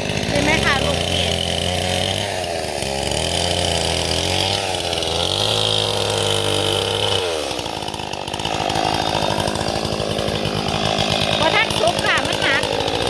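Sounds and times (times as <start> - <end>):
chainsaw engine revving: 0.0 - 13.0.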